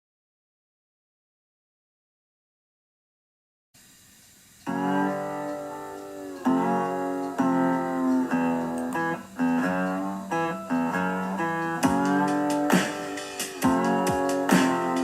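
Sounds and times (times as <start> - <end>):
guitar playing chords: 4.7 - 15.0.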